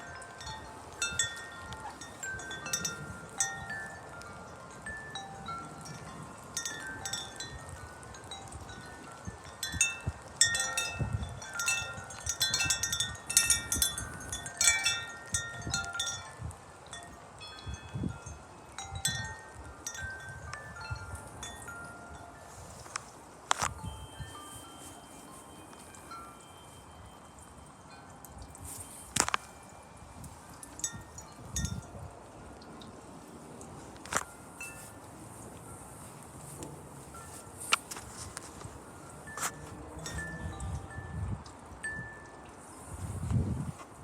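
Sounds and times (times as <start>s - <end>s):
wind chimes ringing: 0.0s - 44.0s
low wind rumble: 29.9s - 44.0s.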